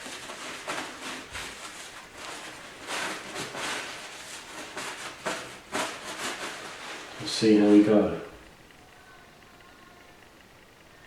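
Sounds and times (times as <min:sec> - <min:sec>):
cloth rag rubbing on metal: 0:00.0 - 0:08.1.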